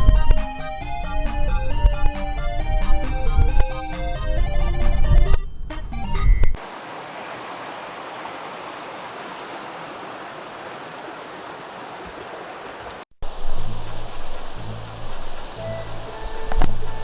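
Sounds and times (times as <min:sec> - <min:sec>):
background music: 0:00.0 - 0:05.4, 0:13.6 - 0:17.0
mountain stream rushing: 0:06.6 - 0:17.0.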